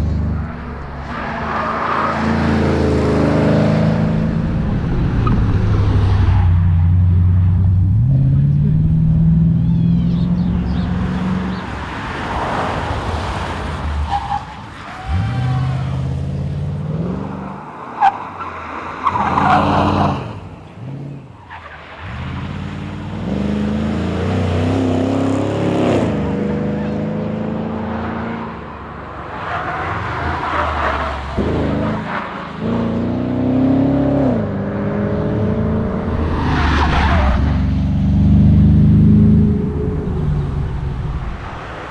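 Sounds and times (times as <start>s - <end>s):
car engine accelerating: 0.0s - 11.8s, 30.2s - 41.9s.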